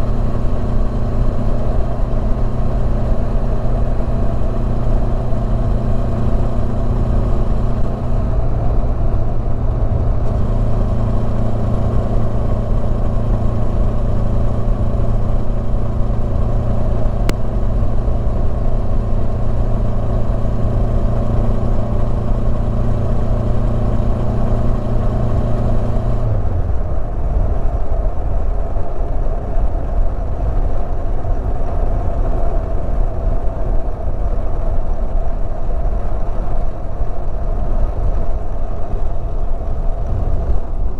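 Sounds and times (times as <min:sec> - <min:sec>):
motorcycle engine running: 0:00.0 - 0:28.1
wind rumble: 0:00.0 - 0:40.9.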